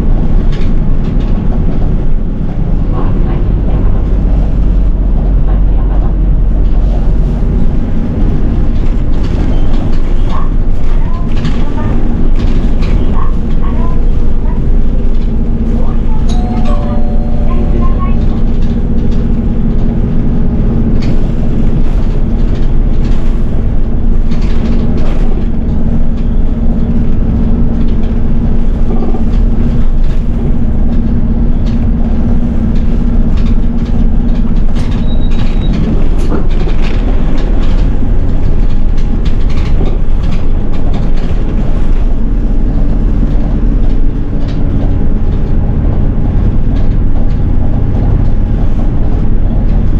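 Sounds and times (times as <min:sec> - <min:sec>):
rattles and knocks from bus body: 0:00.0 - 0:16.3, 0:18.5 - 0:49.9
bus engine and road noise: 0:00.0 - 0:49.9
low hum: 0:16.3 - 0:20.0.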